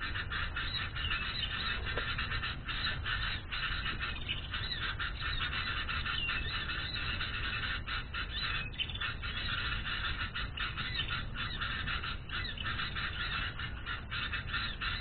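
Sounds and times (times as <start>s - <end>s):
raspy bird calls: 0.0s - 15.0s.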